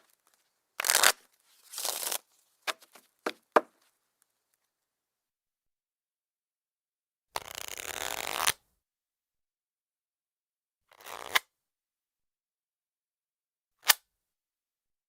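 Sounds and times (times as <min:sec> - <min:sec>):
playing cards riffle-shuffled: 0:00.0 - 0:03.6
cards snapping: 0:00.8 - 0:03.4
cards tapped: 0:02.7 - 0:03.8.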